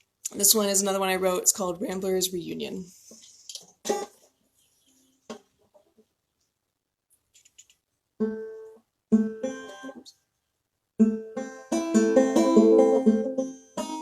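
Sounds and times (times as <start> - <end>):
banjo picking: 3.8 - 4.3, 8.2 - 10.1, 11.0 - 14.0.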